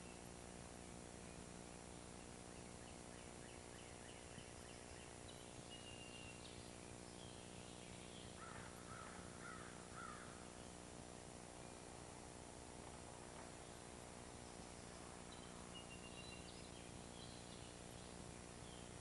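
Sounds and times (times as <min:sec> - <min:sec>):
faint bird chirps and whistle: 0:00.0 - 0:00.4, 0:01.2 - 0:08.6, 0:14.4 - 0:19.0
low hiss and hum: 0:00.0 - 0:19.0.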